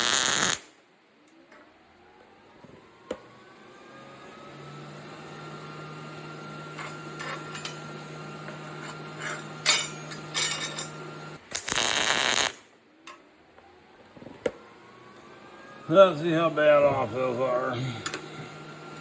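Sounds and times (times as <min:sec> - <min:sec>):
welding arc crackle: 0:00.0 - 0:00.8, 0:11.3 - 0:12.7.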